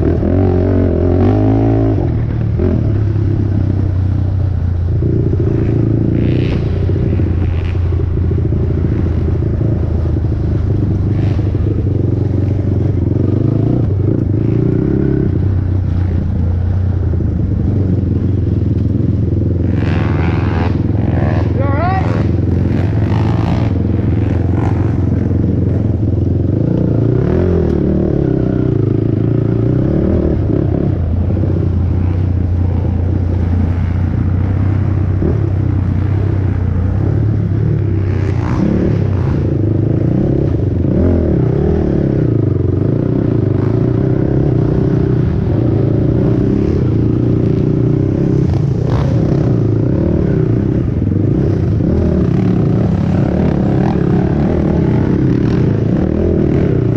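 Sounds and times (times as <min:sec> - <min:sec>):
quad engine revving: 0:00.0 - 0:03.9, 0:19.7 - 0:26.0, 0:26.6 - 0:56.9.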